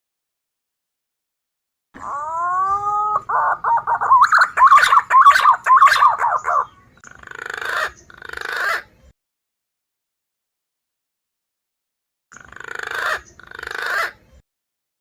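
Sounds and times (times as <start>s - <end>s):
bird whistling and warbling: 2.0s - 8.9s, 12.4s - 14.4s.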